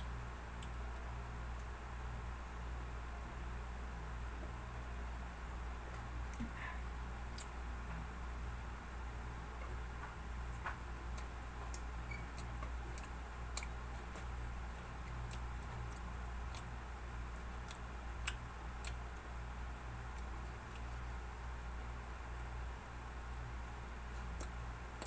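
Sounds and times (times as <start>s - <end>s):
steady low hum: 0.0s - 25.0s
wet chewing mouth clicks: 11.1s - 14.3s, 15.0s - 19.0s.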